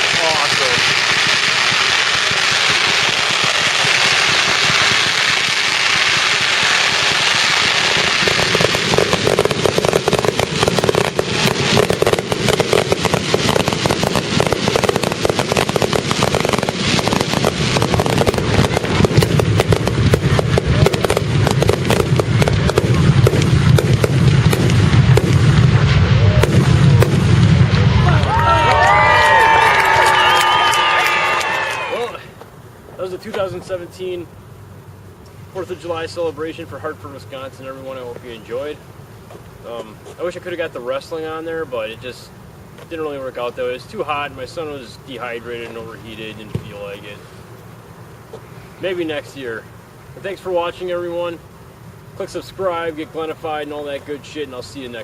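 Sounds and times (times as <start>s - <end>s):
deep rumbling booms: 0.0s - 28.4s
fireworks cracks and bangs: 0.0s - 34.2s, 35.5s - 51.4s
fireworks crackling hiss: 0.0s - 55.0s.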